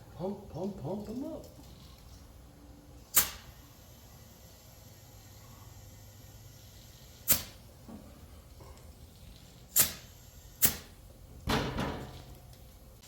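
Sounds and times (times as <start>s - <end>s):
compressed air hissing: 3.1s - 7.6s, 9.7s - 10.9s.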